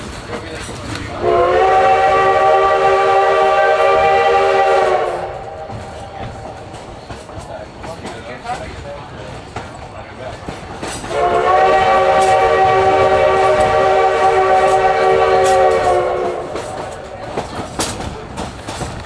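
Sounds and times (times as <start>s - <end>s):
train wheels clicking on rail joints: 0.0s - 19.0s
steam whistle blast: 1.2s - 6.6s, 11.1s - 17.3s.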